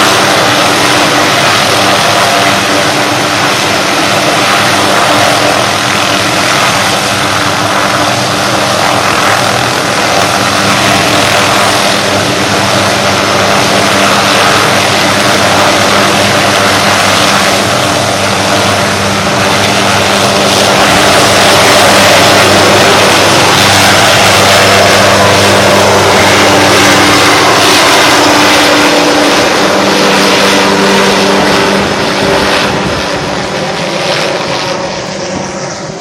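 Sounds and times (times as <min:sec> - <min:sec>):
helicopter engine and rotor: 0:00.0 - 0:36.0.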